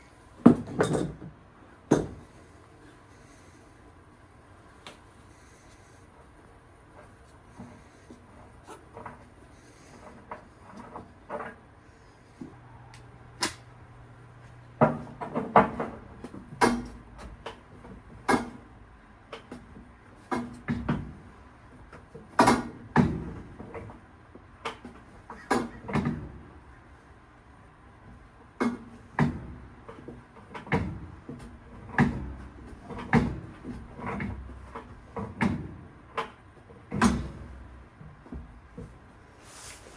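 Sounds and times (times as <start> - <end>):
irregular knocks and clunks: 28.6 - 39.0.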